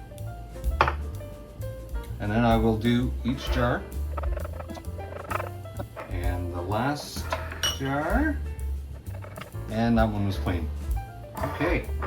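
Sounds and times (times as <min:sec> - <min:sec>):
cloth squeaking on glass: 0:03.3 - 0:08.3, 0:09.0 - 0:09.8.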